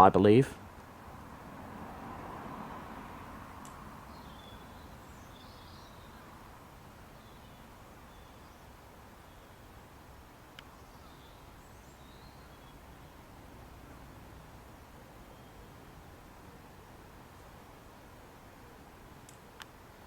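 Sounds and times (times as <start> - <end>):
low background noise: 0.0 - 20.0
faint bird chirps: 4.1 - 6.4, 7.1 - 9.7, 10.6 - 13.3, 15.2 - 16.1.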